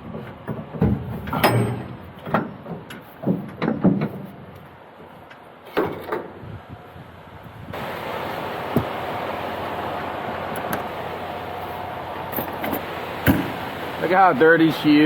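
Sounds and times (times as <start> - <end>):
knocks and clunks: 0.0 - 5.1, 12.3 - 13.6.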